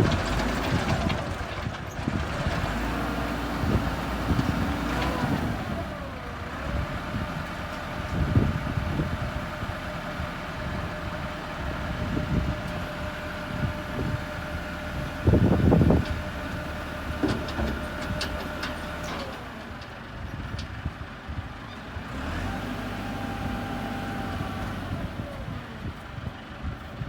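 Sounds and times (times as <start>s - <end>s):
heavy clunks: 17.1s - 19.4s.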